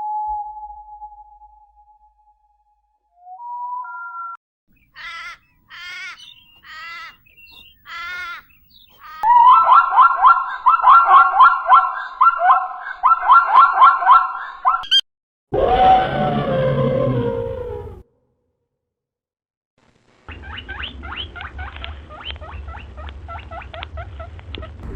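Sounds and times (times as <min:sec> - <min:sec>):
animal wavering calls: 0:09.0 - 0:14.8, 0:15.6 - 0:18.0.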